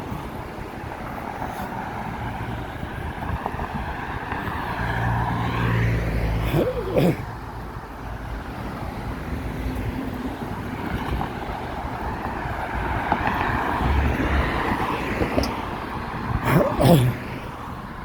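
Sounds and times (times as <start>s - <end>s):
passing vehicle engines: 0.0s - 18.0s
wind on microphone: 2.1s - 4.9s.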